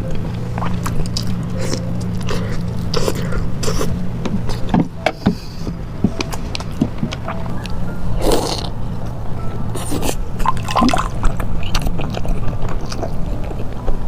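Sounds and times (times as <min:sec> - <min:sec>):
steady low hum: 0:00.0 - 0:14.0
wet chewing smacks and clicks: 0:10.4 - 0:14.0.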